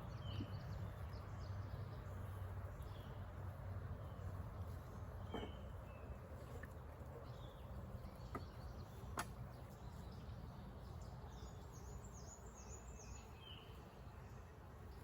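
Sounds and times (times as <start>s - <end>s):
bird chirping: 4.0s - 15.0s.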